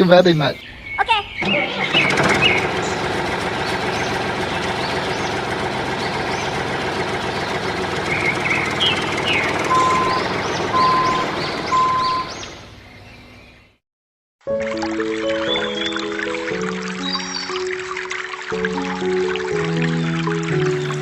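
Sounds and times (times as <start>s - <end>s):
birds chirping: 0.0s - 13.8s, 14.9s - 21.0s
engine idling: 1.4s - 12.7s
short beeps: 10.8s - 12.3s.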